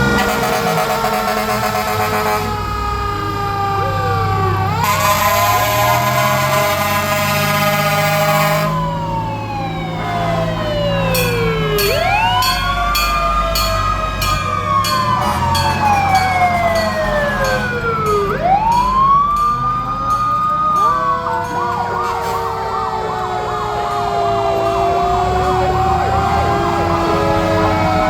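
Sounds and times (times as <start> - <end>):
fire truck sirens: 0.0 - 28.0
siren fast yelp: 3.4 - 19.4.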